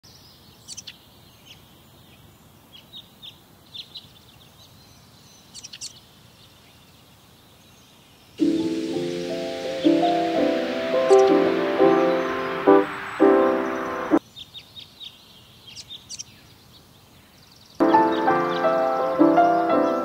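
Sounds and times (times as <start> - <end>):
faint outdoor hiss: 0.0 - 20.0
small birds chirping: 0.0 - 20.0
music: 8.4 - 14.2, 17.8 - 20.0.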